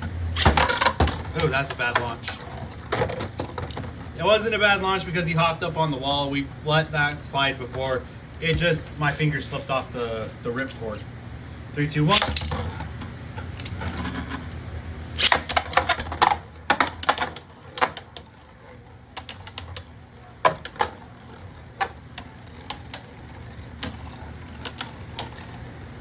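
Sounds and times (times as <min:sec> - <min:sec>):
spinning tops clacking together: 0:00.4 - 0:04.0, 0:12.1 - 0:26.0.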